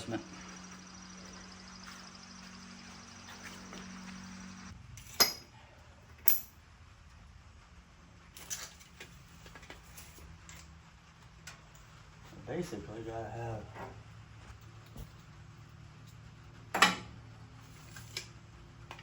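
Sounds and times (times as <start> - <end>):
metal-on-metal clanks: 5.0 - 5.5.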